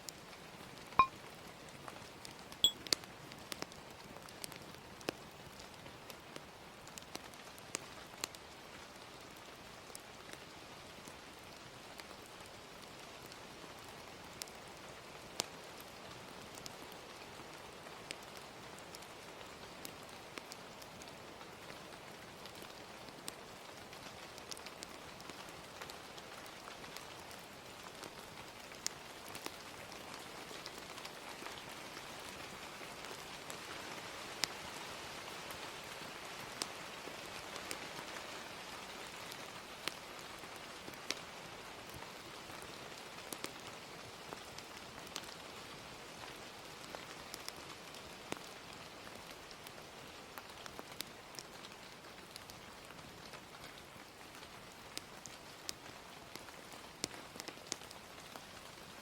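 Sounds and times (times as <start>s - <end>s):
gentle rain hissing: 0.0s - 59.0s
fire crackling and popping: 2.3s - 8.4s, 14.3s - 14.6s, 16.5s - 16.9s, 39.1s - 40.3s, 43.3s - 58.9s.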